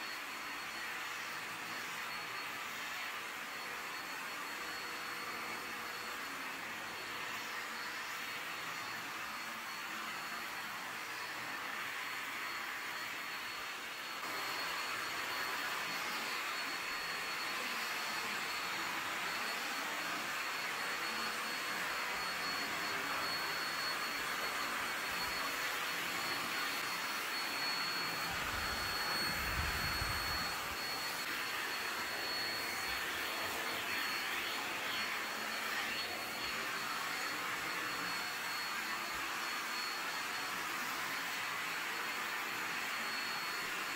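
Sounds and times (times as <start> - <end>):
vacuum cleaner motor running: 0.0 - 43.9.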